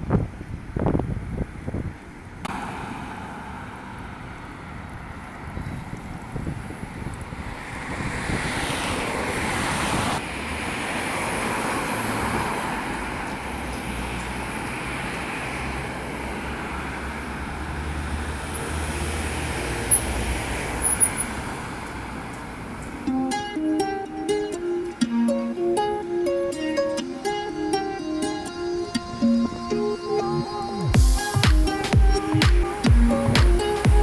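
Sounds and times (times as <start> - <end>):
low rumble of traffic: 0.0 - 34.0
vehicle passing: 2.5 - 34.0.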